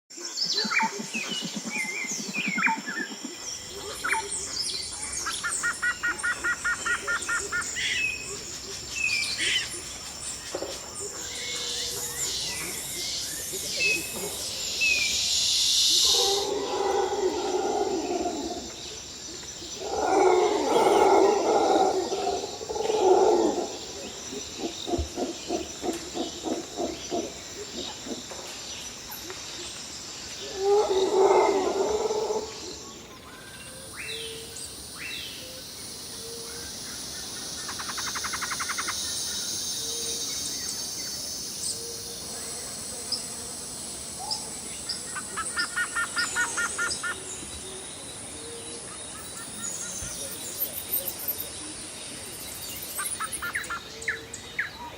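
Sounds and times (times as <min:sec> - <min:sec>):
high insect drone: 0:00.2 - 0:54.9
birds calling: 0:01.8 - 0:18.7, 0:44.3 - 0:51.5.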